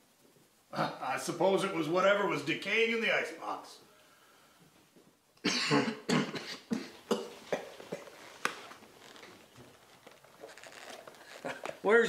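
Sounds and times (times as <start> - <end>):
person coughing: 5.4 - 8.1.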